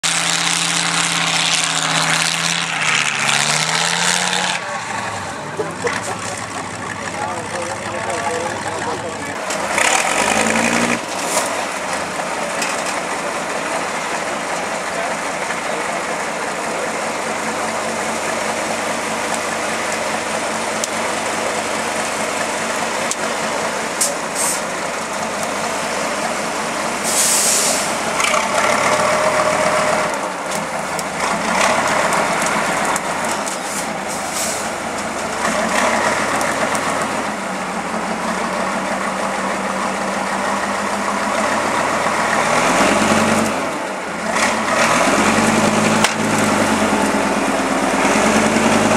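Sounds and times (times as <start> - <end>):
diesel truck engine revving: 0.0 - 48.9
air release hiss: 27.0 - 27.9.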